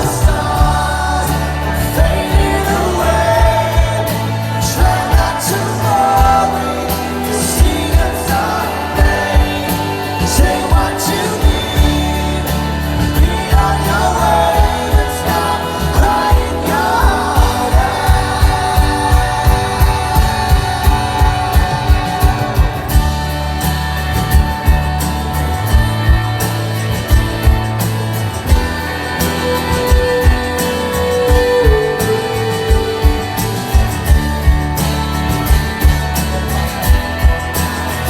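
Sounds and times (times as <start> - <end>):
person singing: 0.0 - 23.3, 29.0 - 34.6
live rock band playing: 0.0 - 38.0.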